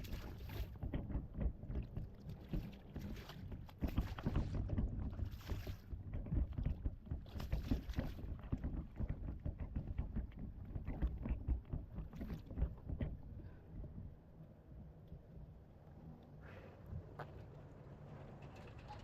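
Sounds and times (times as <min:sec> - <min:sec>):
knocks and splashes: 0:00.0 - 0:14.2
water lapping against kayak hull: 0:00.0 - 0:14.3.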